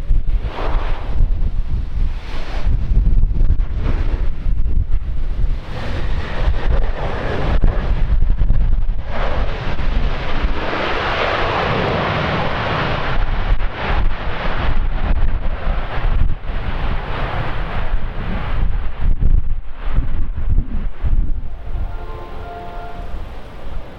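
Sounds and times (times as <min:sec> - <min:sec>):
wind buffeting microphone: 0:00.0 - 0:23.9
jet engines roaring: 0:05.1 - 0:23.9.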